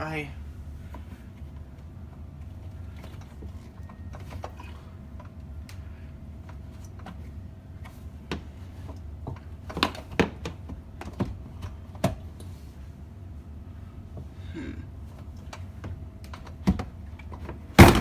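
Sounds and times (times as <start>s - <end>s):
plastic parts clicking and knocking: 16.3s - 18.0s
heavier knock: 17.8s - 18.0s.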